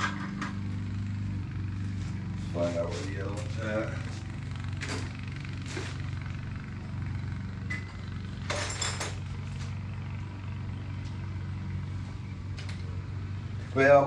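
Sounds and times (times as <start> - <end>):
steady low hum: 0.0 - 14.0
loose metal parts clattering: 8.4 - 9.7.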